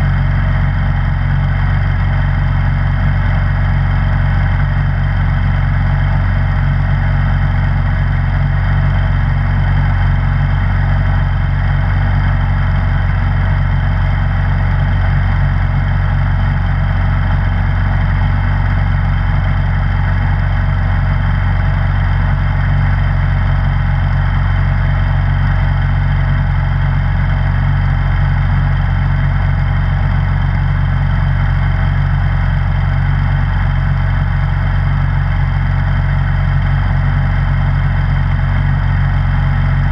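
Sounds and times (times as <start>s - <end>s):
snowblower engine humming: 0.0s - 39.9s.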